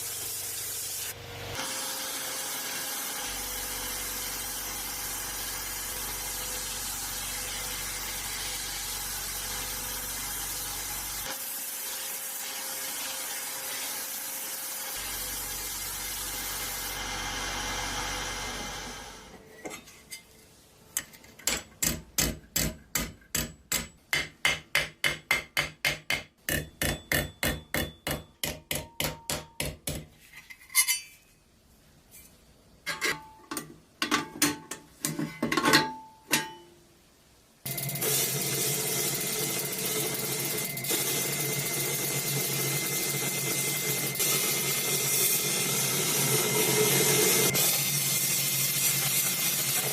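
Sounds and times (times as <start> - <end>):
hammer striking: 21.4 - 30.1.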